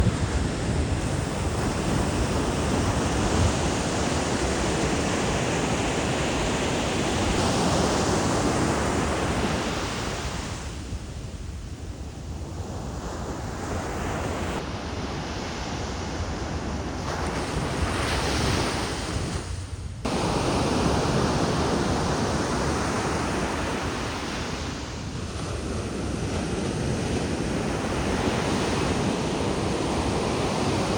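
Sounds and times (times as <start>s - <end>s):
wind buffeting microphone: 0.0s - 30.9s
surf washing onto beach: 20.1s - 30.9s.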